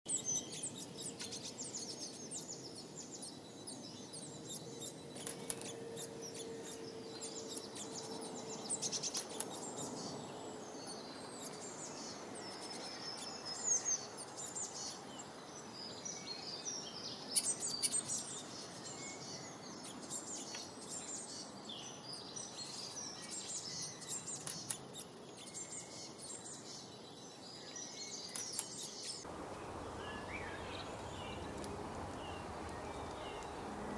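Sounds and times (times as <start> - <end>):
songbirds chirping and trilling: 0.1 - 33.9
steady background hiss: 29.3 - 33.9.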